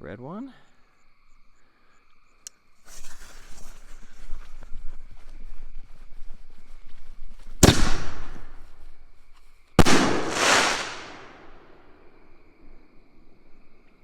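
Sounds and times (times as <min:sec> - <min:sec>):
firework bangs: 0:07.6 - 0:08.8, 0:09.8 - 0:12.1.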